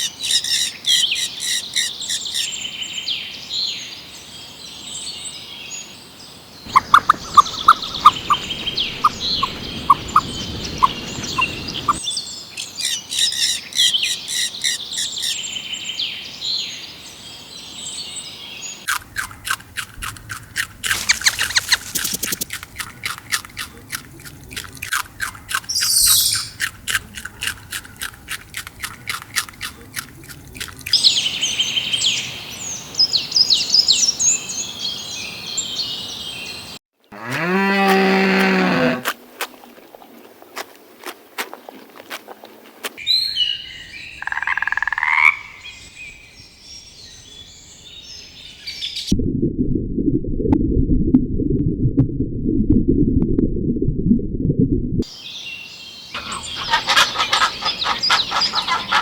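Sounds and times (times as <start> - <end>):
small birds chirping: 0.0 - 36.8, 43.0 - 49.1, 55.0 - 59.0
fast clicking chirps: 6.7 - 12.0, 18.8 - 31.2, 56.2 - 59.0.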